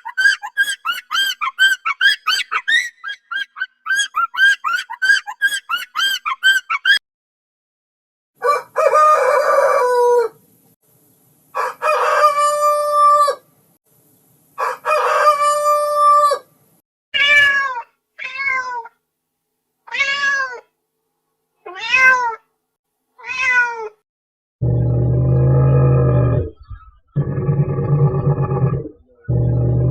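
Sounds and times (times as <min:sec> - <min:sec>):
long animal calls: 0:00.0 - 0:07.0, 0:24.6 - 0:29.9
cat meowing: 0:17.2 - 0:18.9, 0:19.9 - 0:20.7, 0:21.7 - 0:22.4, 0:23.2 - 0:24.0.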